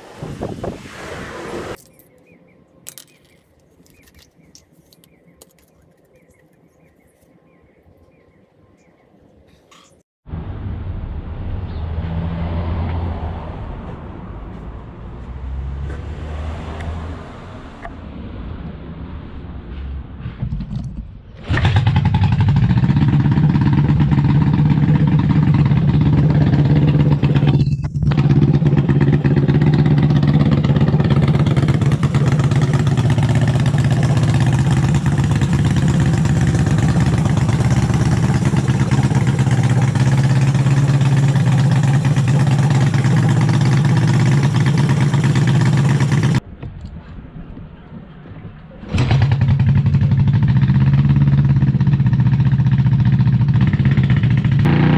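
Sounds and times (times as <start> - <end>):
motorcycle engine running: 21.7 - 46.4, 49.0 - 54.9.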